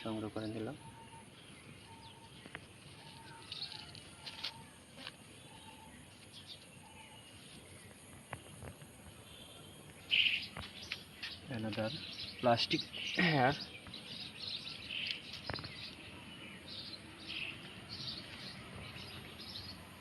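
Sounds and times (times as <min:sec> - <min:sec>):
bird calling steady note: 0:00.0 - 0:04.8
high bird chirps: 0:05.5 - 0:19.8.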